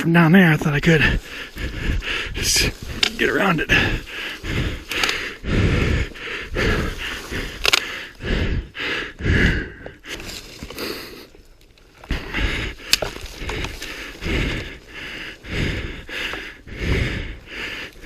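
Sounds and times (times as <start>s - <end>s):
man breathing hard: 0.9s - 11.4s, 12.0s - 18.0s
sharp clicks: 4.9s - 5.4s, 7.4s - 8.1s.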